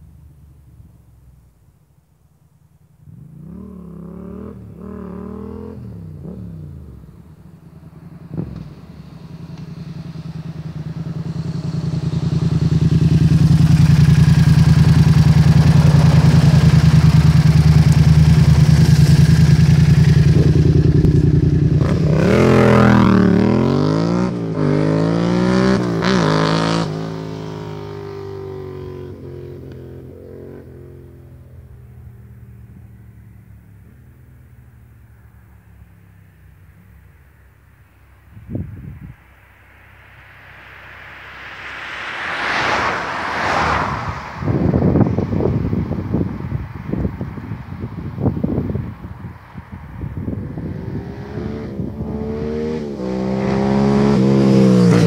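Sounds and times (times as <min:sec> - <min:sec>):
motorcycle engine revving: 0:03.0 - 0:34.0, 0:50.0 - 0:55.0.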